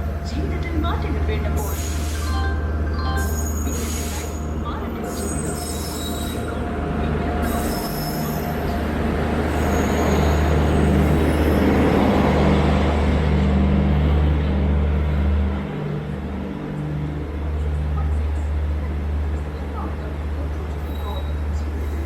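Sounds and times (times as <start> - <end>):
train rumbling along platform: 0.0 - 22.0
train wheel squeals: 1.6 - 4.5, 5.1 - 6.6, 7.4 - 8.8, 9.4 - 11.7, 20.8 - 22.0.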